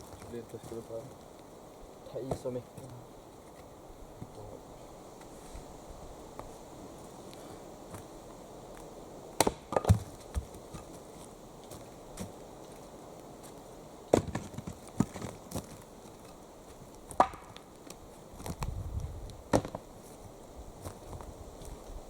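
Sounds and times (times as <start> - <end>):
axe chopping wood: 9.4 - 10.2, 17.2 - 17.6.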